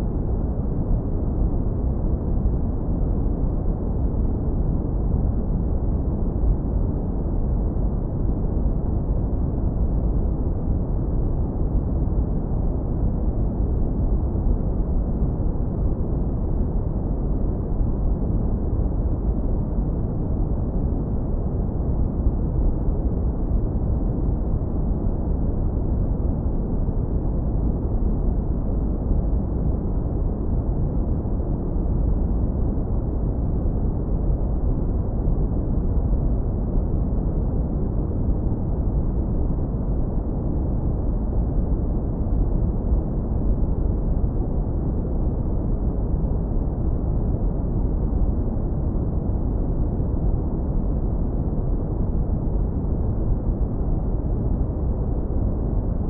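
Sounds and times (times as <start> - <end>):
deep brown noise rumble: 0.0 - 56.0.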